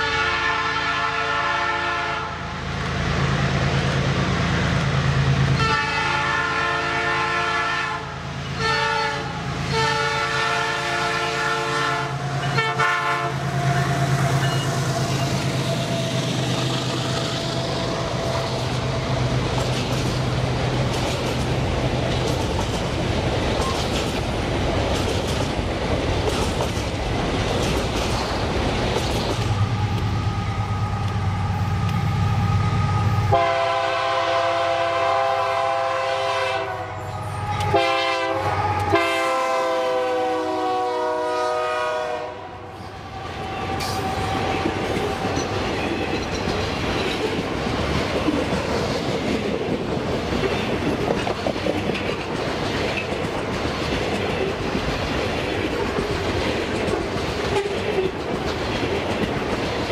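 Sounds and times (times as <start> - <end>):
locomotive horn: 0.0 - 2.5, 5.6 - 15.9, 29.6 - 45.6
train wheels clattering on rails: 12.3 - 32.2, 43.4 - 59.9.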